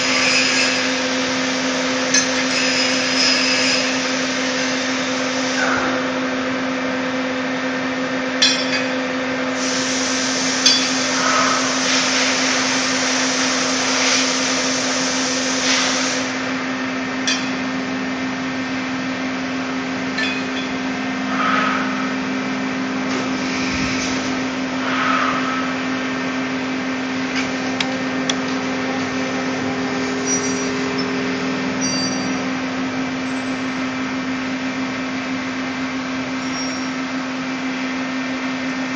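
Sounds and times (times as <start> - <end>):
hiss: 9.6 - 16.4
metal tools clinking: 20.1 - 20.8, 30.0 - 31.2, 31.8 - 32.5
lathe humming: 20.8 - 34.7.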